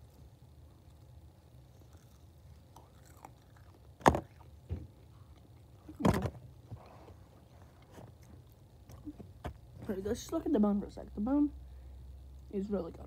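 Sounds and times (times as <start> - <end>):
person chewing meat: 1.8 - 4.5.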